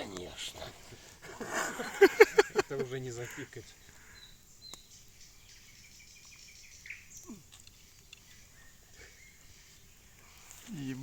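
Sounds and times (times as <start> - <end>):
faint bird chirps: 3.2 - 11.0.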